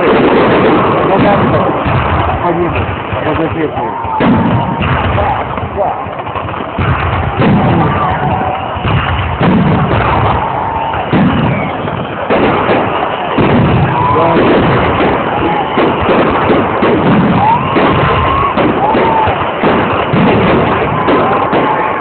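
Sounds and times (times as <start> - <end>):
people's voices: 0.0 - 9.4, 10.1 - 22.0
fireworks bangs and crackles: 0.0 - 22.0.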